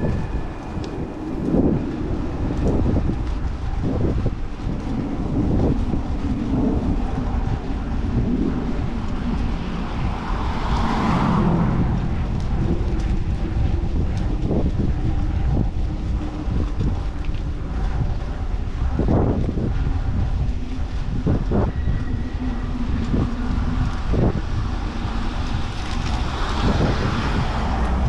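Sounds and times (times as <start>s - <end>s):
wind buffeting microphone: 0.0s - 28.0s
street traffic: 8.9s - 14.6s, 24.0s - 28.0s
vehicle passing: 9.3s - 14.6s.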